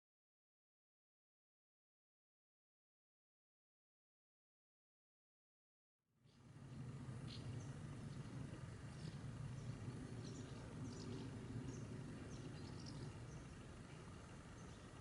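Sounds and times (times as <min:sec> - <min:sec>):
low steady rumble: 0:06.2 - 0:15.0
small birds chirping: 0:06.2 - 0:15.0.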